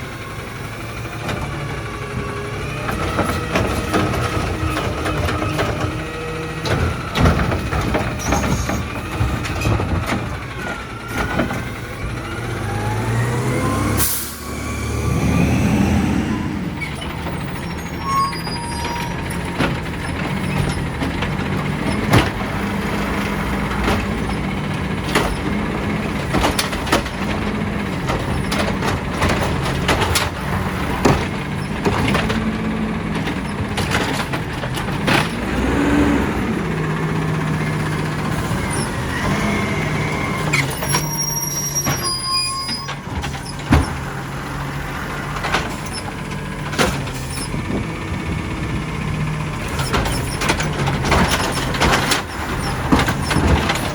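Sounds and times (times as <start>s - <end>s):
diesel engine running: 0.0s - 53.9s
sharp knocks and clanks: 19.0s - 39.5s, 49.6s - 53.9s.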